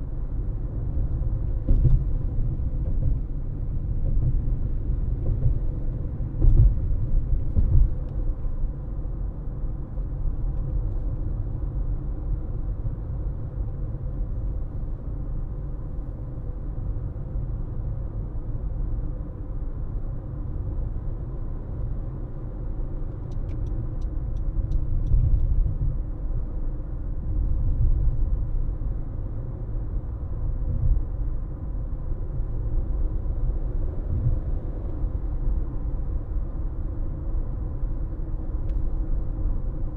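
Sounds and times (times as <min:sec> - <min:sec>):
car engine and tyre rumble: 0:00.0 - 0:39.9
light ticks: 0:23.1 - 0:25.5.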